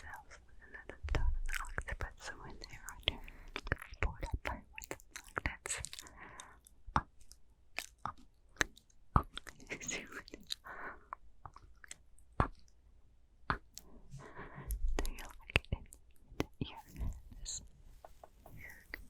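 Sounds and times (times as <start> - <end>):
soft breathy whispers: 0.0 - 6.7, 9.6 - 11.7, 13.5 - 19.0
tongue and lip clicks: 1.1 - 10.7, 11.4 - 12.8, 13.4 - 13.9.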